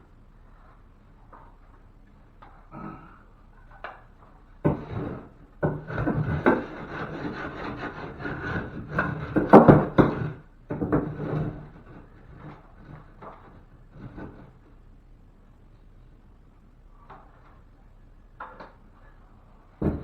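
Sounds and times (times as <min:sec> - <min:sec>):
scraping against wood: 0:03.7 - 0:14.8, 0:19.8 - 0:20.0
sharp knocks on wood: 0:19.8 - 0:20.0.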